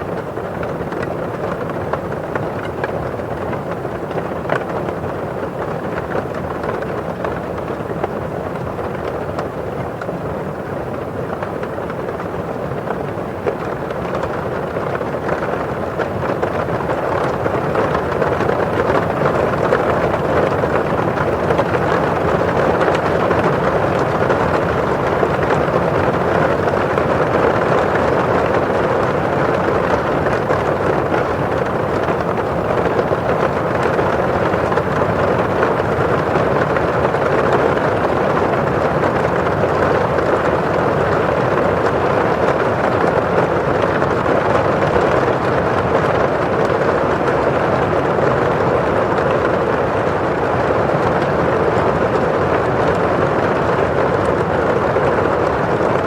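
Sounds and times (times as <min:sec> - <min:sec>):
rain on a window pane: 0:00.0 - 0:56.0.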